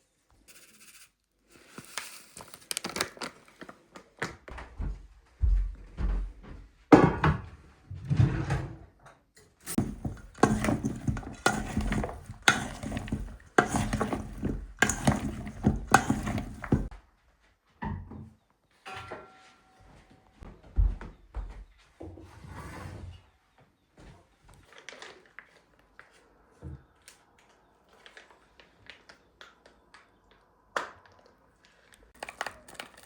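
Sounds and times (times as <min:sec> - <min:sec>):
hard objects knocking and scraping: 0:09.7 - 0:16.9.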